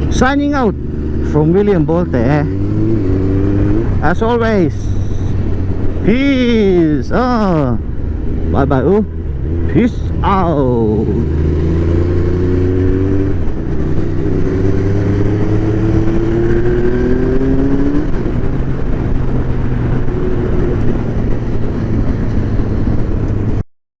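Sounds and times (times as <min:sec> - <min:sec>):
motorbike engine accelerating: 0:00.0 - 0:23.6.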